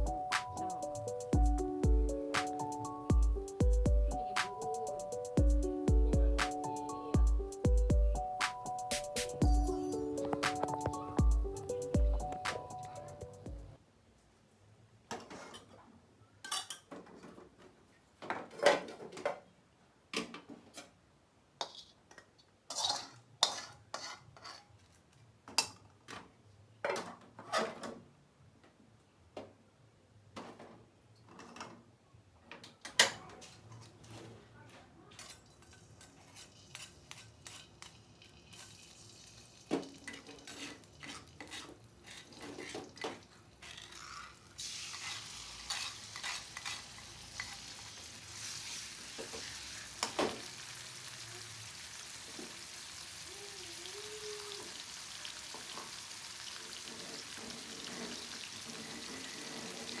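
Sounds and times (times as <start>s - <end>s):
food sizzling in a pan: 22.7s - 24.7s, 35.4s - 60.0s.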